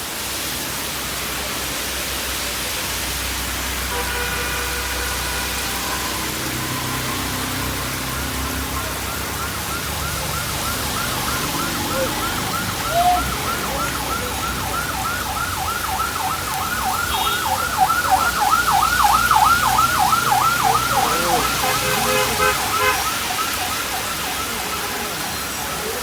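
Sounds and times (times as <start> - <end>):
rain hiss: 0.0 - 26.0
siren yelping: 6.0 - 26.0.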